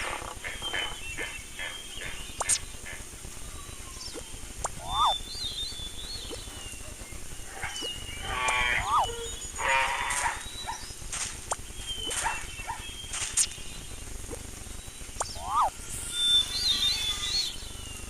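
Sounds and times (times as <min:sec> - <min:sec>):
birds chirping: 0:00.0 - 0:18.0
farm animal calling: 0:07.5 - 0:10.9.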